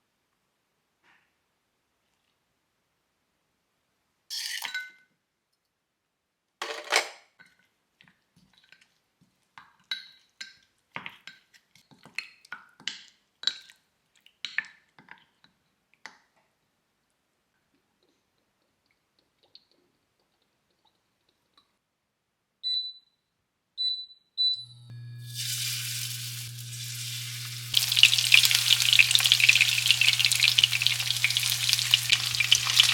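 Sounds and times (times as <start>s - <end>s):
cutlery clatter: 6.6s - 7.2s.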